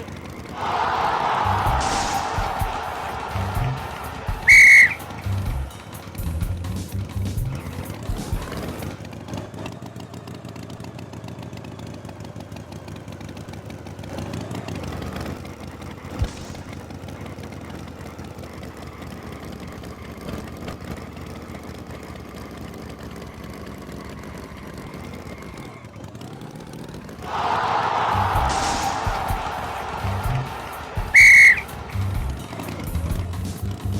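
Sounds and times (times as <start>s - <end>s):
engine running steadily: 2.9s - 27.3s, 31.2s - 33.9s.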